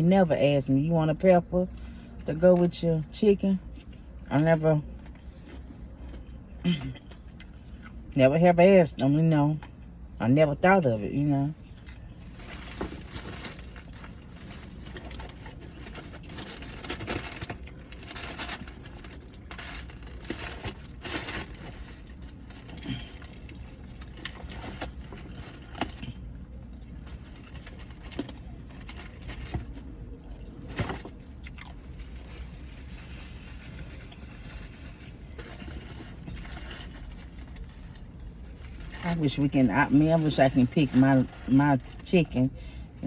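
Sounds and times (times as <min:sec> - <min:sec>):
person chewing and crunching: 0:11.6 - 0:38.9.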